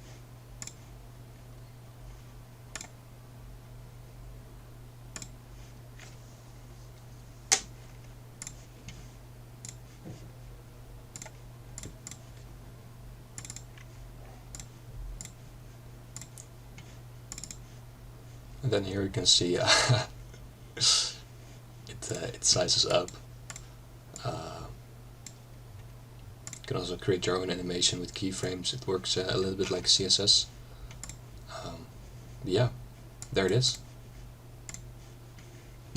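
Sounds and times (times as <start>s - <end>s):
low electrical hum: 0.0s - 35.9s
mouse and keyboard clicks: 13.4s - 13.9s, 17.3s - 17.6s.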